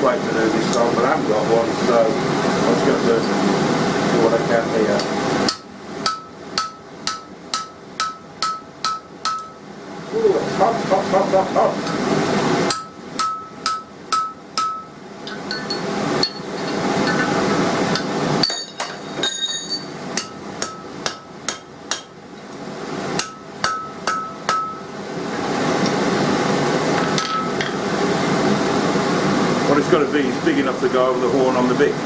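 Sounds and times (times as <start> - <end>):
hammer striking steel on anvil: 5.0 - 9.6, 12.7 - 22.2, 23.2 - 24.9, 27.0 - 27.8.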